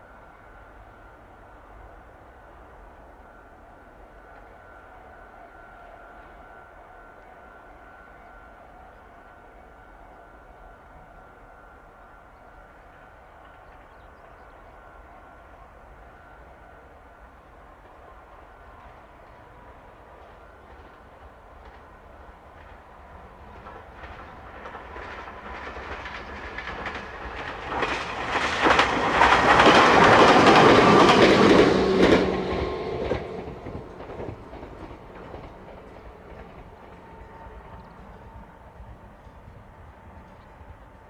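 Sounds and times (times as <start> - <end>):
electric train passing: 15.9 - 41.0
train wheels clicking over rail joints: 20.7 - 38.3.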